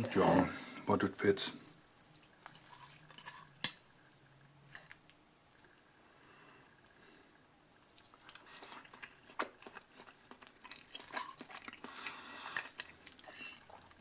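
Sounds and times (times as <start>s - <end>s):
close-up chewing: 7.9s - 14.0s.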